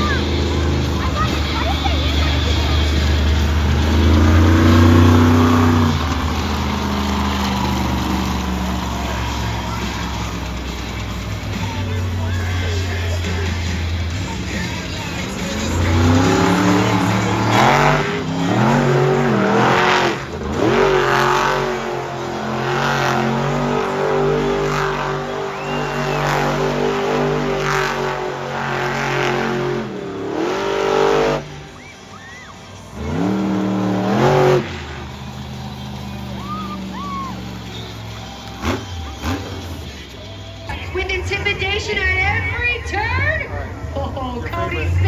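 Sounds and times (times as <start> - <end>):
monster truck engine revving: 0.0 - 45.0.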